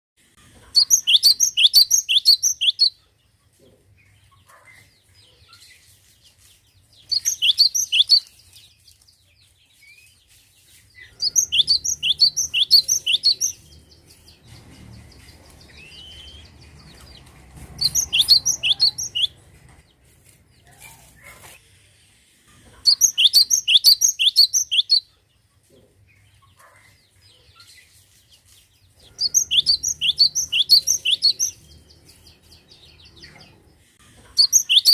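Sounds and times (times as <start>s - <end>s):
bird singing sharp repeated notes: 0.8s - 3.0s, 7.0s - 8.5s, 11.1s - 16.8s, 17.8s - 19.4s, 22.9s - 25.1s, 29.1s - 32.6s, 34.4s - 34.9s.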